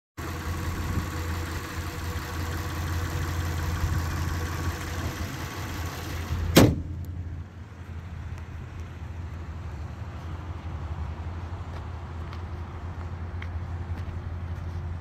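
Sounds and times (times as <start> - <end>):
car engine idling: 0.2 - 15.0
car hood slammed shut: 6.5 - 7.0.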